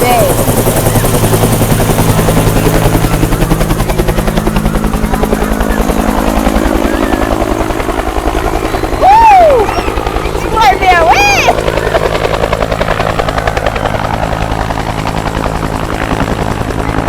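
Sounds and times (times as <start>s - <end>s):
helicopter rotor beating: 0.0s - 17.0s
high voice crying out: 9.0s - 11.6s.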